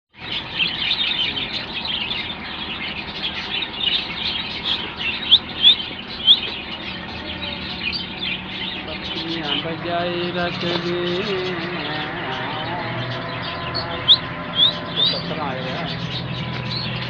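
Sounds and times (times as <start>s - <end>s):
parrots chirping and chattering: 0.2s - 17.0s
sharp rising parrot chirps: 11.8s - 15.3s.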